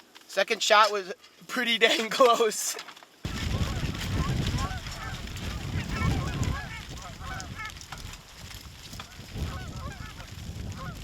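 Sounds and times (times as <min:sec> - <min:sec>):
wind rumble on microphone: 0:03.2 - 0:11.0
geese honking: 0:03.4 - 0:07.8, 0:09.4 - 0:11.0.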